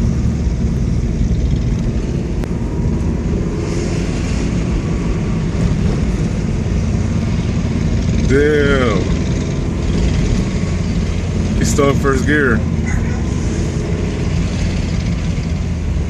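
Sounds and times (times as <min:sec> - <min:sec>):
motorcycle engine running: 0:00.0 - 0:03.3, 0:05.2 - 0:13.2.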